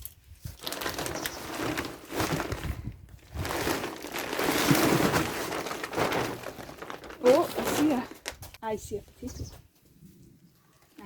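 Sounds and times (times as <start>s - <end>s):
hands rustling through soil: 0.0s - 8.8s.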